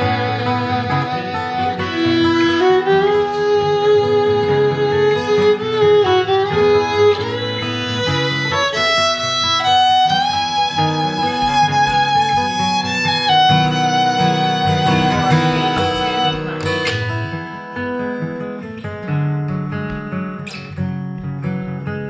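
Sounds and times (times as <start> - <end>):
violin slow melody: 0.0 - 17.2
acoustic guitar accompaniment: 0.0 - 22.0.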